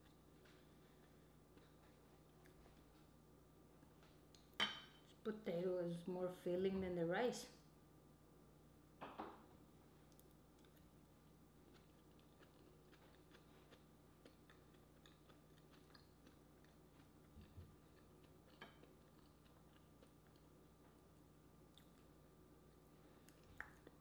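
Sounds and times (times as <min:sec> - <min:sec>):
person chewing food: 0:00.0 - 0:03.1, 0:10.0 - 0:24.0
low steady hum: 0:00.0 - 0:24.0.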